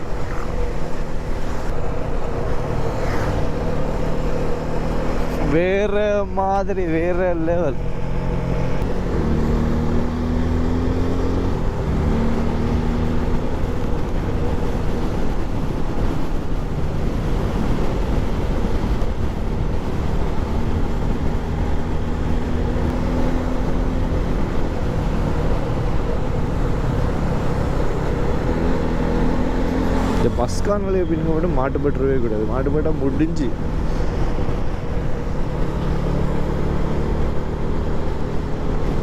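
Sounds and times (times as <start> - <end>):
wind and road noise: 0.0 - 39.0
motorcycle engine running: 17.4 - 31.0.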